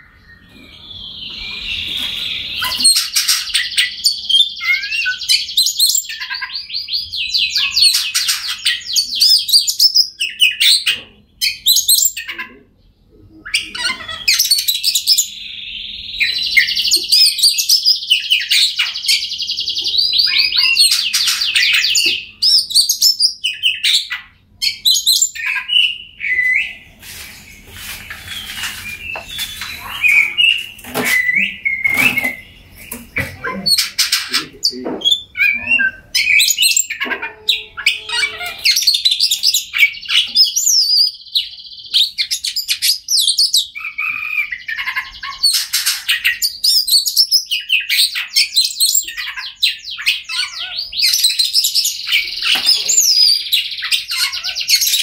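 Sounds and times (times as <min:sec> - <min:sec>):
bird singing whistles and trills: 0:00.0 - 0:12.4, 0:13.3 - 0:55.0.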